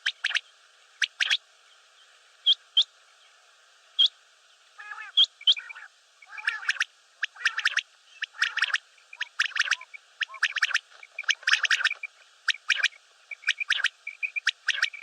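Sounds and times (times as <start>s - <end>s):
quail calling: 0.0s - 0.4s, 1.0s - 1.4s, 4.8s - 15.0s.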